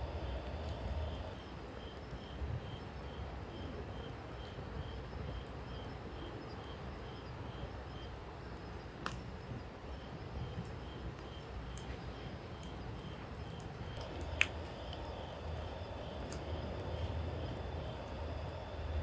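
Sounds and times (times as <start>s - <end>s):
fire crackle: 0.0s - 2.7s, 8.8s - 19.0s
campfire burning: 0.0s - 19.0s.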